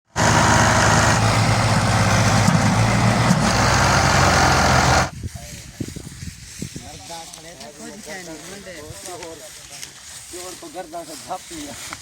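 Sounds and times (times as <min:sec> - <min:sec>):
tractor diesel engine running: 0:00.1 - 0:05.1.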